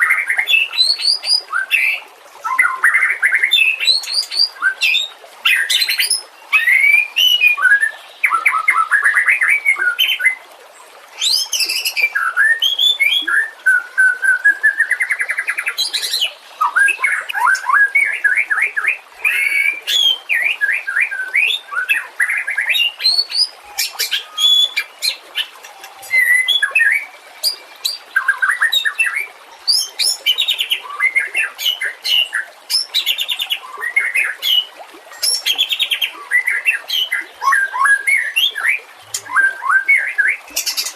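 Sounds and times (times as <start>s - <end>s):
bird singing: 11.2s - 34.6s.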